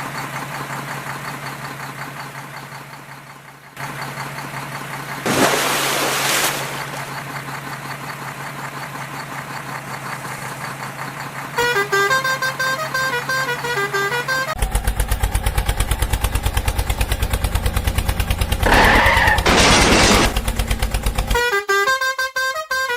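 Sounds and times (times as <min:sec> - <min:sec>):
fast chugging cartoon engine: 0:07.0 - 0:19.4
cartoon engine hum: 0:18.4 - 0:20.4.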